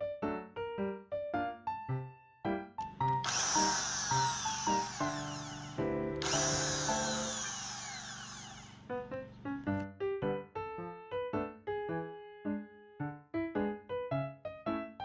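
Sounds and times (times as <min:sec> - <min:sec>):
power tool motor running: 0:02.8 - 0:09.2.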